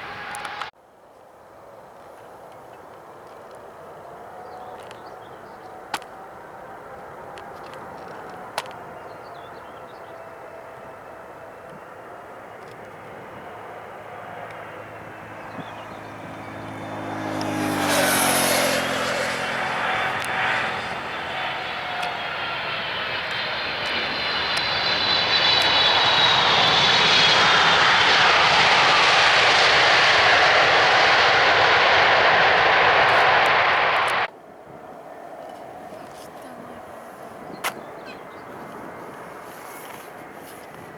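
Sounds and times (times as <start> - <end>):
jet engine roar: 0.0 - 0.7, 4.8 - 34.3
jet engine whine: 0.0 - 0.8, 4.1 - 40.9.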